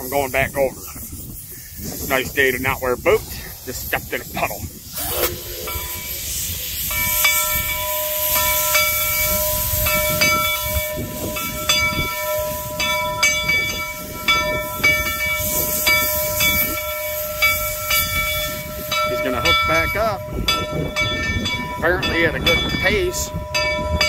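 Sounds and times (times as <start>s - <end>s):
hiss of steam: 0.0s - 21.4s
steam locomotive whistle: 5.0s - 20.0s.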